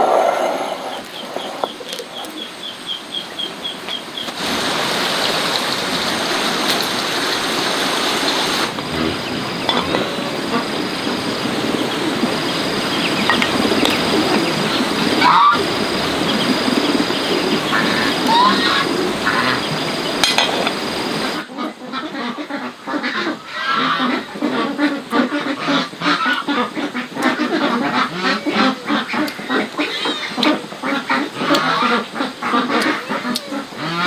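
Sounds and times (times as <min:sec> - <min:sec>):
steady background noise: 0:00.0 - 0:34.0
ducks quacking: 0:06.8 - 0:20.2, 0:20.9 - 0:34.0.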